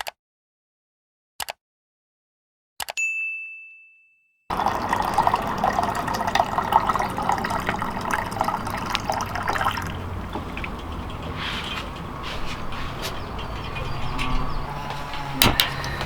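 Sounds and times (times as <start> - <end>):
water splashing: 4.5 - 12.9.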